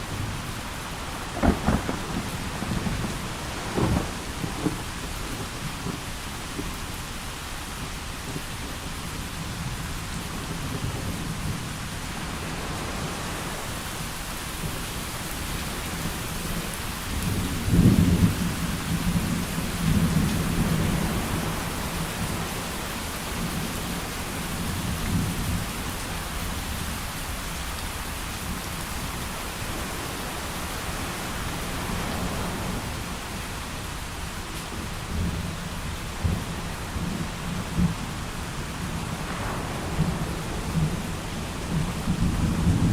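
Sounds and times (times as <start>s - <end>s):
rolling thunder: 0.0s - 6.9s, 34.2s - 42.9s
heavy rain: 0.0s - 42.9s.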